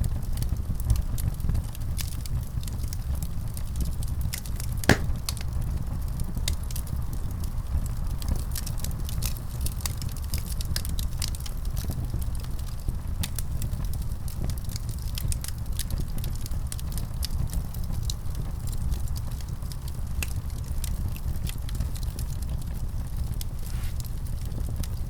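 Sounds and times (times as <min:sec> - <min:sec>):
wood fire crackling: 0:04.9 - 0:05.5.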